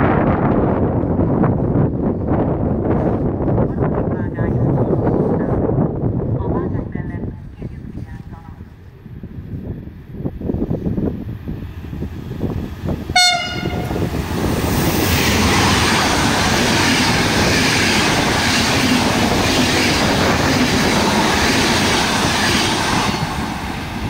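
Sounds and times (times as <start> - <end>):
train wheels rushing on rail: 0.0 - 24.0
train horn blast: 13.1 - 14.1.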